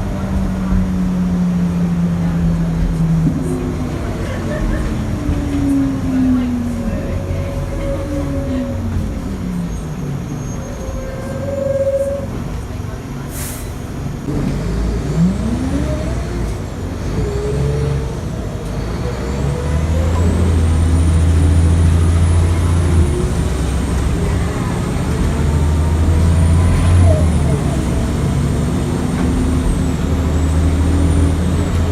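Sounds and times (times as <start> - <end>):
bus engine pulling away: 0.0 - 31.9
air brake hiss: 13.3 - 13.8.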